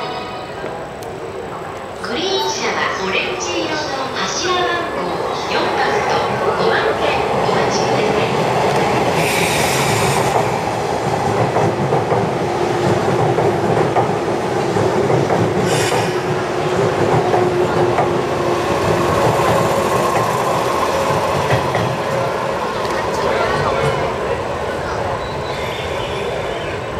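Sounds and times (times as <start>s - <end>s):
train steady whine: 0.0s - 26.9s
short hisses: 9.2s - 10.3s, 15.7s - 16.2s.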